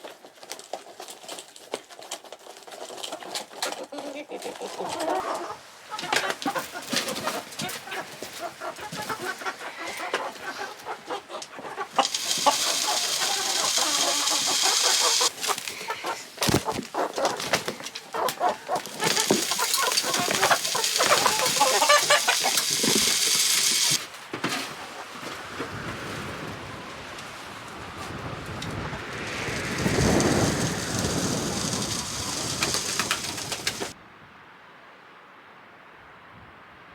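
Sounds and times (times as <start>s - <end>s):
chickens clucking: 1.9s - 24.0s, 28.8s - 34.0s
loud rushing hiss: 12.0s - 15.4s, 28.2s - 34.0s.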